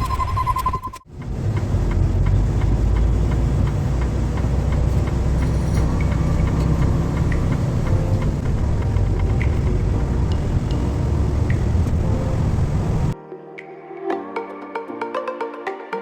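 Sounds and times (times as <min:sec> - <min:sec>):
road noise: 0:01.1 - 0:13.2
truck engine rumble: 0:01.1 - 0:13.2.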